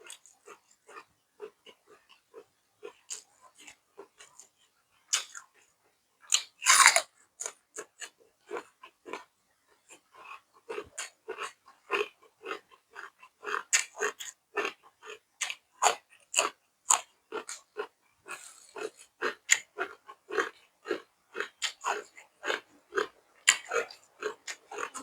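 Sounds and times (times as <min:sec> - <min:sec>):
person chewing food: 0:06.3 - 0:09.3, 0:09.9 - 0:25.0.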